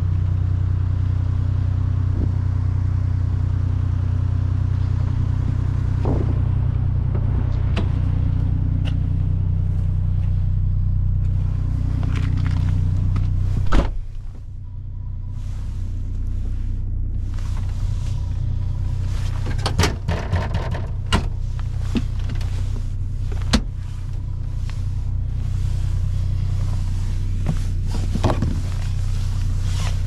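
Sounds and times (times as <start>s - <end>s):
car engine idling: 0.0s - 30.0s
loud slam: 5.8s - 7.5s.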